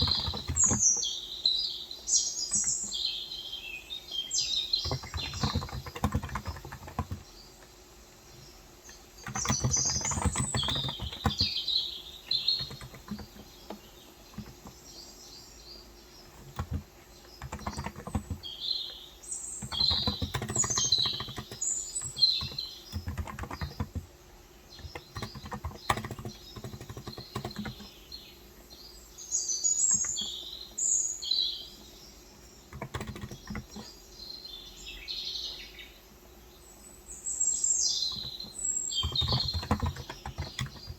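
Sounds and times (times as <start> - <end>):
typing on a keyboard: 0.0 - 1.1, 4.4 - 7.7, 8.9 - 11.6, 12.2 - 14.9, 16.3 - 19.0, 19.6 - 24.1, 24.7 - 28.2, 29.9 - 30.4, 32.4 - 34.0, 38.0 - 40.9
small birds chirping: 0.0 - 40.9.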